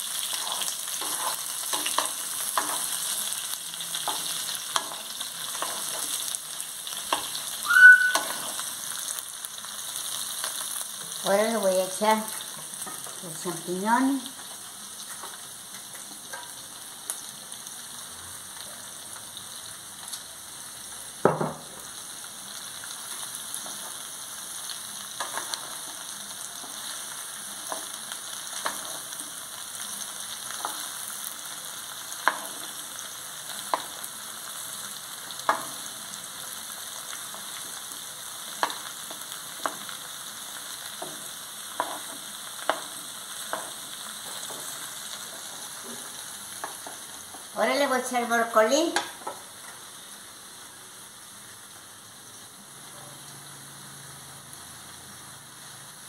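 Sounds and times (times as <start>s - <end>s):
vegetables sizzling in oil: 0.0s - 56.0s
wooden spoon knocking against pan: 21.2s - 21.7s.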